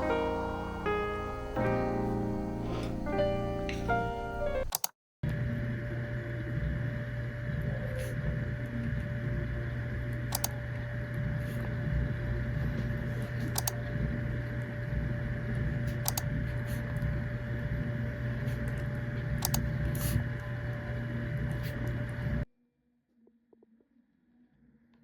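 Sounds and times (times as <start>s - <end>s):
faint constant whine: 0.0s - 4.7s, 5.3s - 22.4s
low mechanical hum: 0.0s - 22.5s
light clicks: 10.3s - 10.5s, 13.6s - 13.8s, 16.0s - 16.3s, 19.4s - 19.6s.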